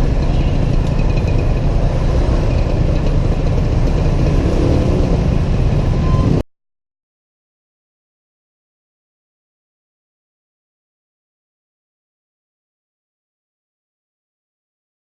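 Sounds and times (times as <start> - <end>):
scooter engine rumbling: 0.0 - 6.4
wind noise: 0.0 - 6.4.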